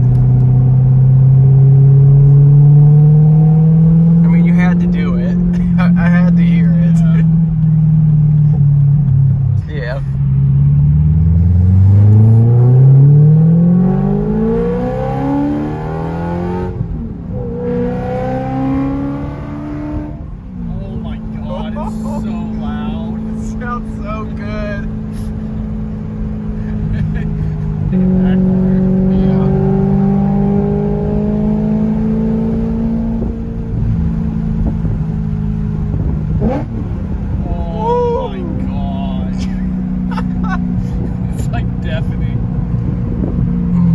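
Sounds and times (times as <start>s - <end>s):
car engine accelerating hard: 0.0s - 43.9s.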